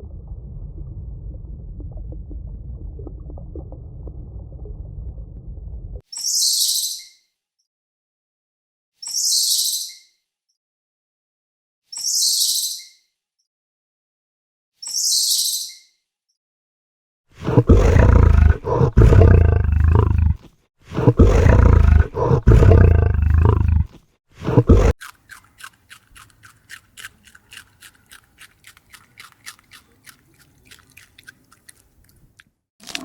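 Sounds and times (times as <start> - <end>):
large animal deep calls: 17.4 - 25.0.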